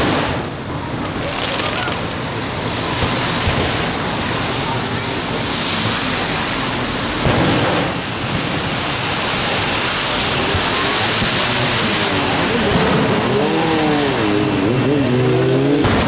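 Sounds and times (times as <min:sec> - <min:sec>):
fireworks: 0:00.0 - 0:16.0.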